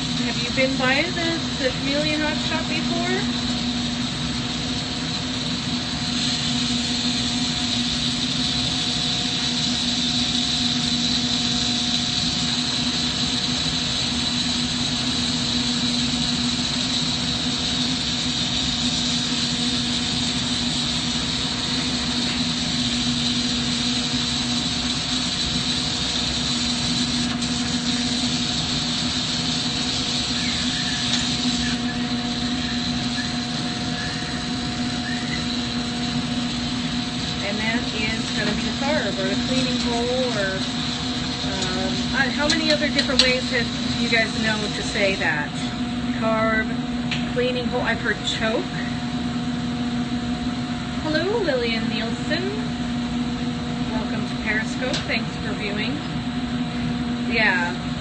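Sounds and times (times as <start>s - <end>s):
constant hum: 0.0s - 58.0s
torch flame hissing: 0.0s - 58.0s.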